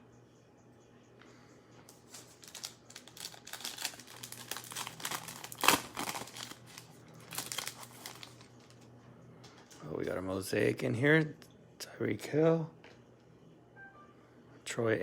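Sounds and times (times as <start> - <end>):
plastic wrapper crinkling: 1.9 - 8.9.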